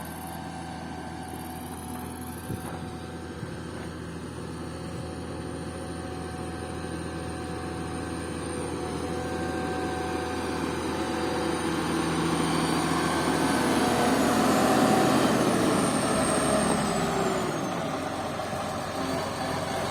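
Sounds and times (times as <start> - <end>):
heavy diesel engine running: 0.0 - 19.9.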